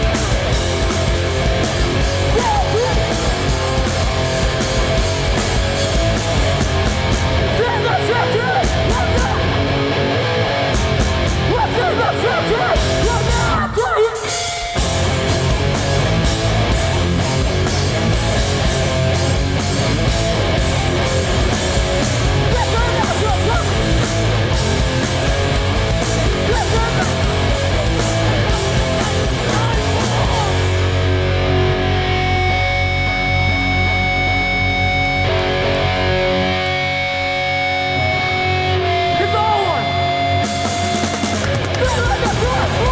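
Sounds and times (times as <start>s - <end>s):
hardcore punk band playing: 0.0s - 42.9s
person yelling vocals: 2.2s - 3.3s, 7.5s - 9.6s, 11.4s - 14.4s, 22.4s - 24.0s, 26.2s - 30.8s, 41.8s - 42.9s.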